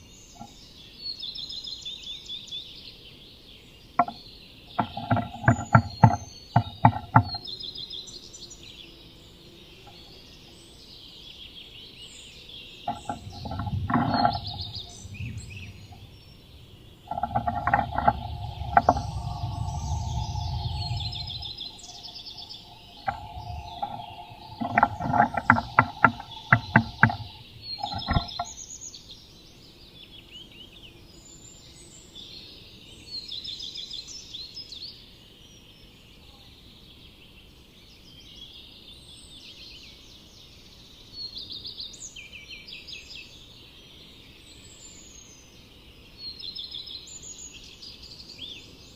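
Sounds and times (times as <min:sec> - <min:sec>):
songbirds singing: 0:00.0 - 0:36.0
bird tapping inside wooden box: 0:04.0 - 0:07.5, 0:12.9 - 0:16.1, 0:17.1 - 0:28.5
rustling: 0:12.9 - 0:28.5
steady hum: 0:12.9 - 0:28.5.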